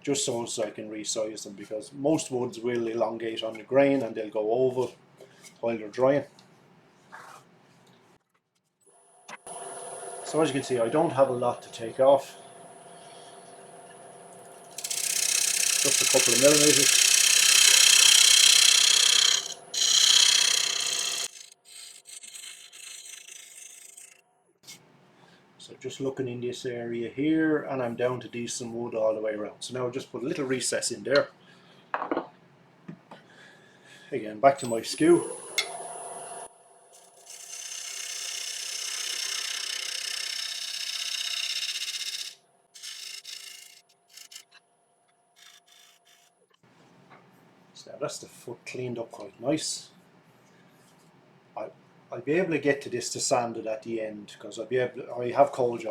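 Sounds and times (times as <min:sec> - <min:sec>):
faint steady whine: 0:09.1 - 0:17.3, 0:34.5 - 0:37.0
lathe running hum: 0:09.5 - 0:21.5, 0:35.2 - 0:43.5
lathe tool scraping wood: 0:09.6 - 0:24.2, 0:36.9 - 0:44.5.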